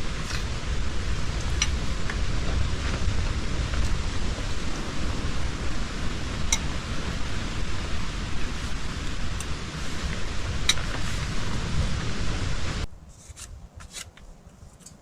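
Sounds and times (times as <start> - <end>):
storm wind buffeting microphone: 0.0 - 13.8.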